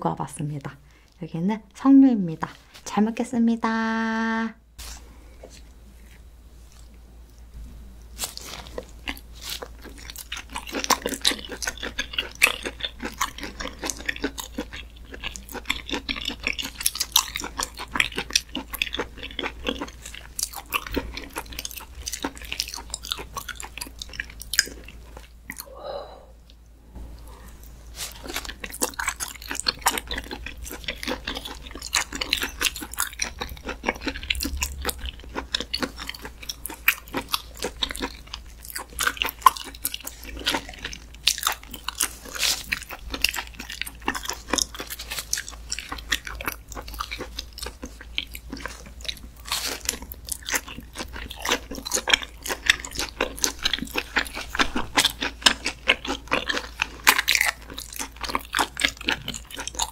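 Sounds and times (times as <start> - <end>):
wet mouth chewing meat: 4.9 - 25.8, 27.3 - 59.9.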